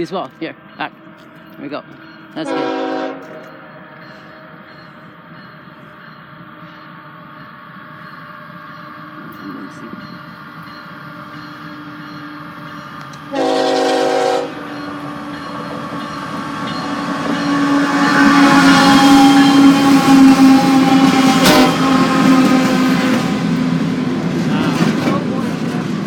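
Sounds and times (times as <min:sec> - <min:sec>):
train engine and wheel noise: 0:00.0 - 0:26.0
locomotive horn blast: 0:02.4 - 0:03.7, 0:13.3 - 0:14.7, 0:17.5 - 0:23.5.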